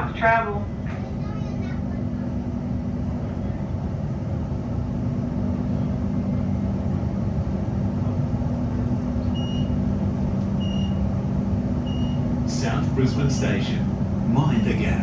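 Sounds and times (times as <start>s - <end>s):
electrical hum: 0.0s - 15.0s
train cabin rumble: 0.0s - 15.0s
short high beeps: 9.4s - 9.8s, 10.6s - 11.0s, 11.9s - 12.2s.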